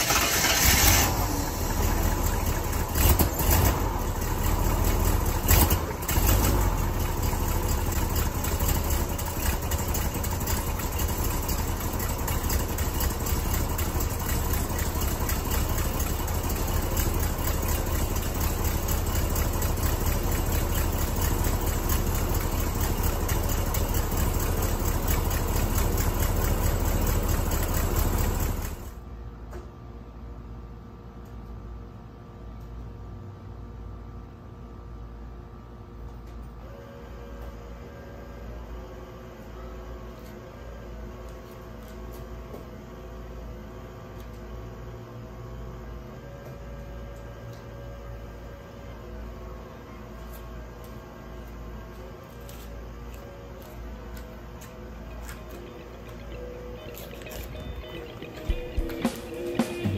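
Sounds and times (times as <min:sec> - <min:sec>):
truck engine revving and idling: 0:00.0 - 0:28.9.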